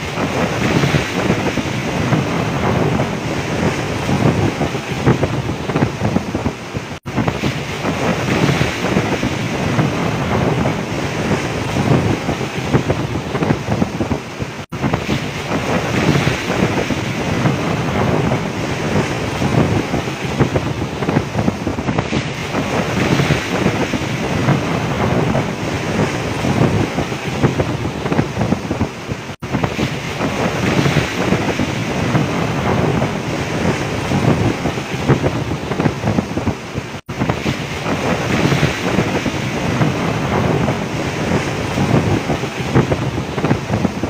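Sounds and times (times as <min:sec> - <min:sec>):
heavy waves breaking: 0:00.0 - 0:44.0
wind buffeting microphone: 0:00.0 - 0:44.0.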